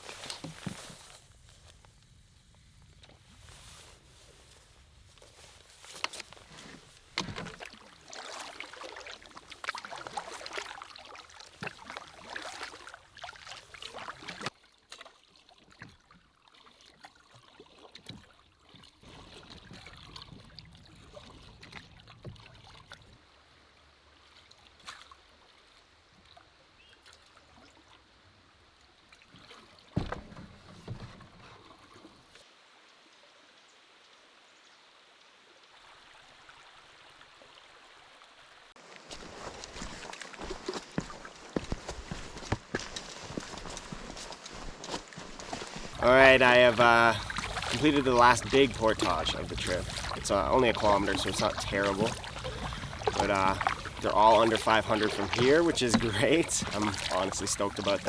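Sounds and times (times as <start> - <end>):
water splashing and trickling: 0.0 - 58.0
knocks on canoe: 30.0 - 31.3.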